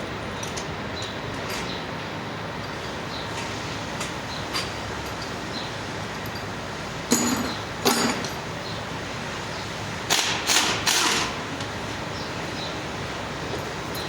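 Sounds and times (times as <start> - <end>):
workshop background hum: 0.0 - 14.0
metal tools clinking: 4.5 - 8.5, 13.6 - 14.0.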